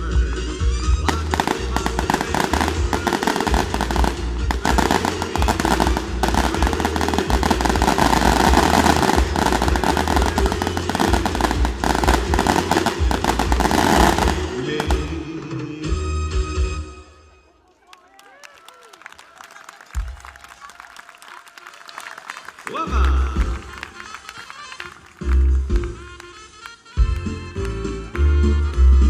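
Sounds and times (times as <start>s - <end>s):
music: 0.0s - 17.6s, 22.2s - 29.0s
fireworks bangs and crackles: 1.0s - 15.6s.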